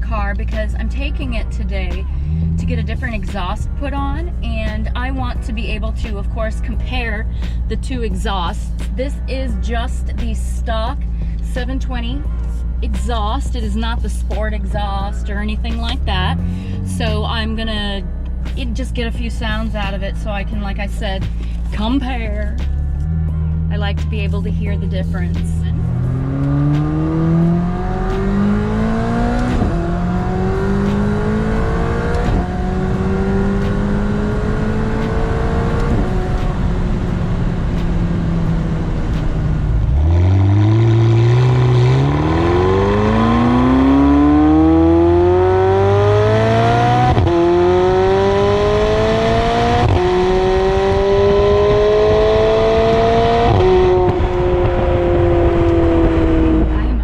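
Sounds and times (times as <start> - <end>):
car engine accelerating through gears: 0.0 - 4.4, 22.5 - 57.0.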